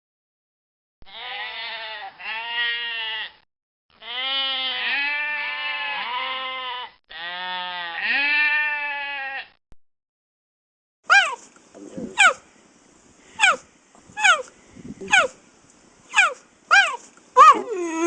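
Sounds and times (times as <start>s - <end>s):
sheep bleating: 1.1s - 3.4s, 4.0s - 9.6s.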